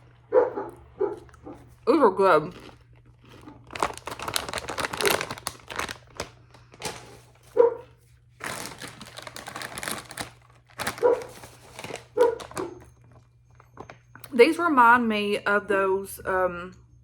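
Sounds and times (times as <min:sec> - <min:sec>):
potato chips being chewed: 0:00.0 - 0:14.4.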